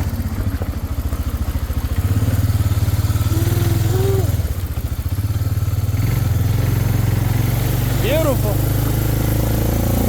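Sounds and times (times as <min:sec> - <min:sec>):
atv engine running: 0:00.0 - 0:10.0.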